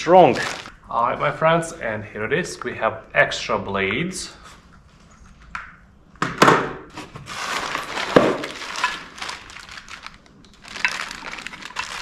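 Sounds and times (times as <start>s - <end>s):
packaging rustling and crinkling: 0.2s - 0.7s, 7.0s - 12.0s.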